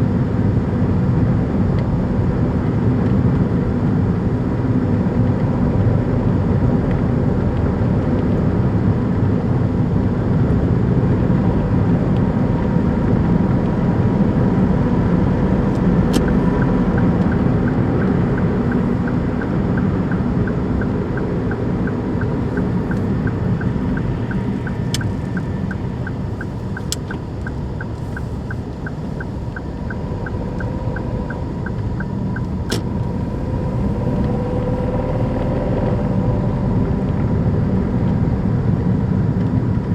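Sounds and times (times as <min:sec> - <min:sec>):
car engine low rumble: 0:00.0 - 0:39.9
sharp clicks: 0:15.7 - 0:33.2
light even ticking: 0:15.7 - 0:34.4.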